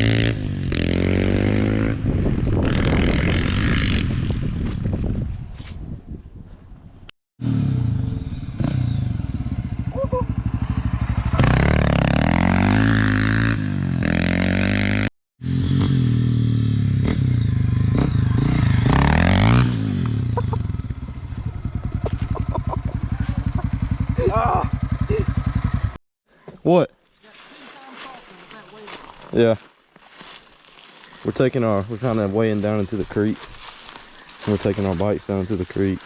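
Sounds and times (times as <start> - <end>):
dirt bike engine revving: 0.0 - 2.0, 7.4 - 26.0.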